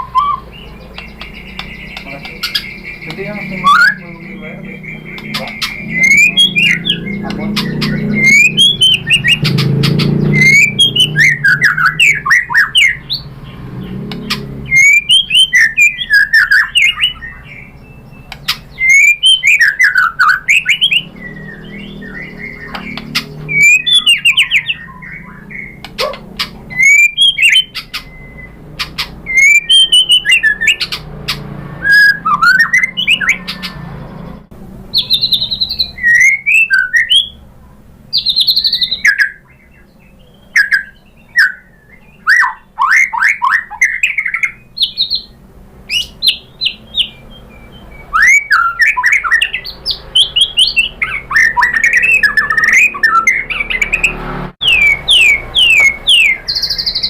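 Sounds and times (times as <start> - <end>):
sharp bird clicks: 0.0 - 4.2, 4.9 - 34.4, 48.2 - 57.0
bird singing whistled notes: 0.0 - 37.4, 38.1 - 57.0.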